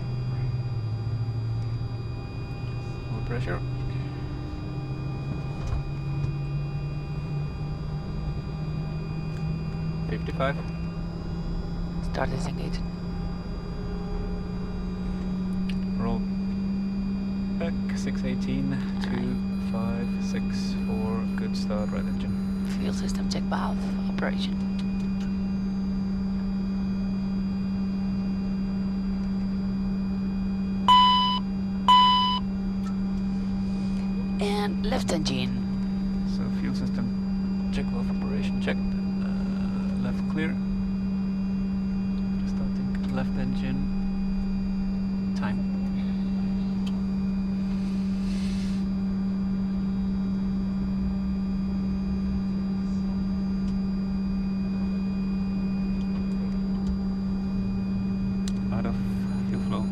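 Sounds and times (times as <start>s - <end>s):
cockpit low hum: 0.0s - 59.9s.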